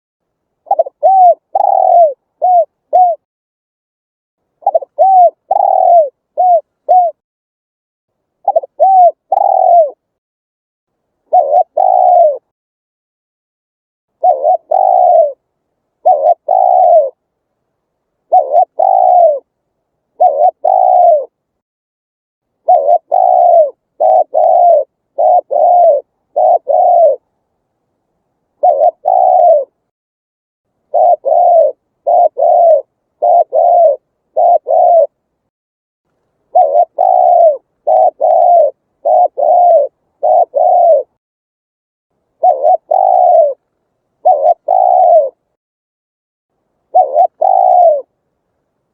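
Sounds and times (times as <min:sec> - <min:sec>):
dove cooing: 0:00.6 - 0:03.2, 0:04.6 - 0:07.2, 0:08.4 - 0:10.0, 0:11.3 - 0:12.5, 0:14.2 - 0:15.4, 0:16.0 - 0:17.2, 0:18.2 - 0:19.5, 0:20.1 - 0:21.4, 0:22.6 - 0:27.3, 0:28.6 - 0:29.9, 0:30.9 - 0:35.2, 0:36.5 - 0:41.2, 0:42.4 - 0:43.6, 0:44.2 - 0:45.5, 0:46.9 - 0:48.2.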